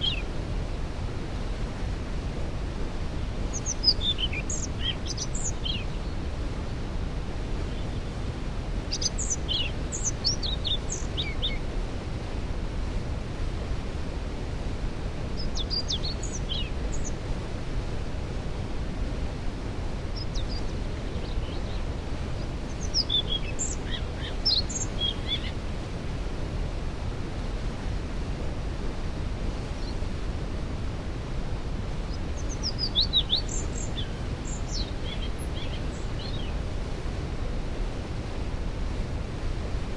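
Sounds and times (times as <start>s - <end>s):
songbirds singing: 0.0s - 2.1s, 2.9s - 12.1s, 14.9s - 18.3s, 19.6s - 27.6s, 29.6s - 30.2s, 31.8s - 37.9s
waterfall rushing: 0.0s - 39.9s.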